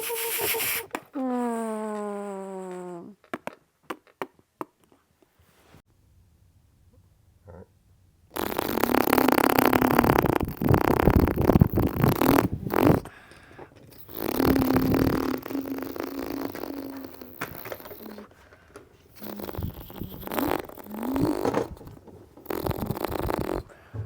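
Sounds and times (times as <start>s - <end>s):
child imitating car engines: 0.0s - 3.1s, 14.0s - 18.3s, 19.2s - 21.8s.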